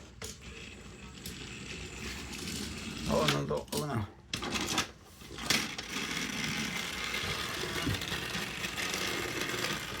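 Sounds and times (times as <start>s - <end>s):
toy train motors whirring: 0.0s - 10.0s.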